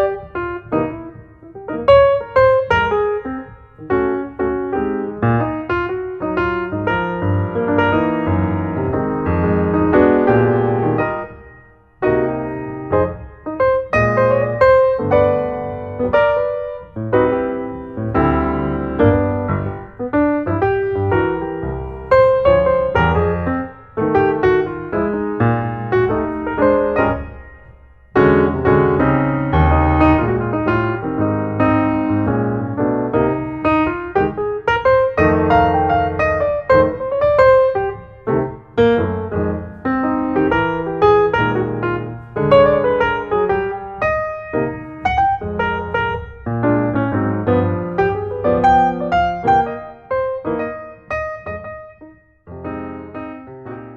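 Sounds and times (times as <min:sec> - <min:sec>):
piano chords and notes: 0:00.0 - 0:53.9.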